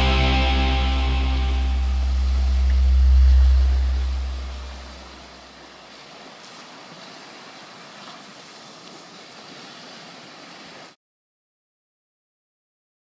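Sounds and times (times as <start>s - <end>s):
steady rushing noise: 0.0s - 5.6s.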